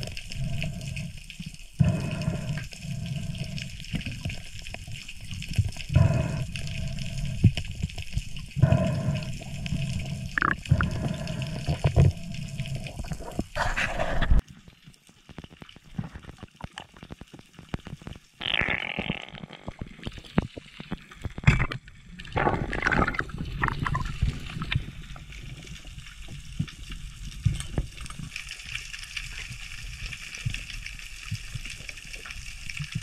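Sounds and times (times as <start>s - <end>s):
breathing through a snorkel: 0.0s - 4.4s, 5.6s - 14.4s
small underwater clicks: 0.0s - 33.0s
water gurgling: 0.0s - 33.0s.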